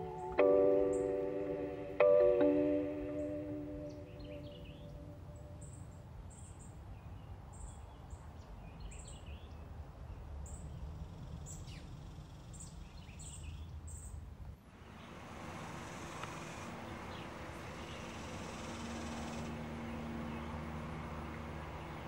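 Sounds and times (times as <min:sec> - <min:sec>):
high bird chirps: 0:00.0 - 0:05.7
lower warbled bird calls: 0:15.8 - 0:22.0.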